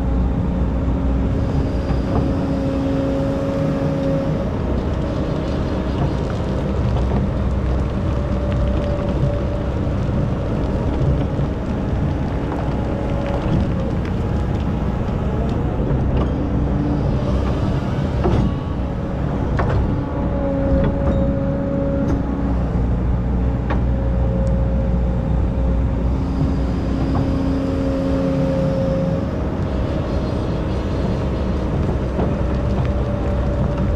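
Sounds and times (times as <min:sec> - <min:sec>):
diesel engine running: 0:00.0 - 0:33.9
hydraulic whine: 0:00.0 - 0:33.9.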